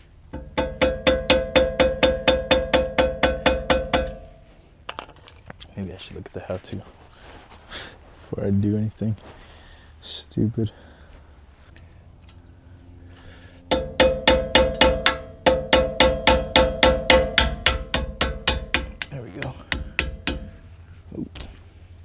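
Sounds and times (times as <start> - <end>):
rapid metal-on-metal tapping: 0.0 - 5.1, 13.7 - 20.7.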